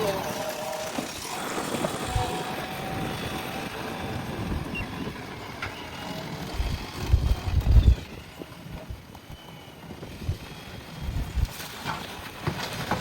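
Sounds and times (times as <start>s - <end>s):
diesel engine running: 0.0s - 12.6s.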